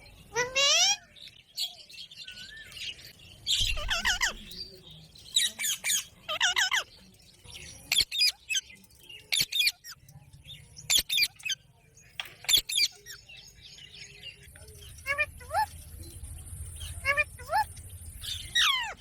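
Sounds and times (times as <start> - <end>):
parrot chirping: 3.6 - 4.5, 5.4 - 7.0, 14.9 - 15.8, 16.8 - 19.0
parrot squawking: 3.7 - 4.4, 5.7 - 6.9, 16.9 - 17.7, 18.5 - 19.0.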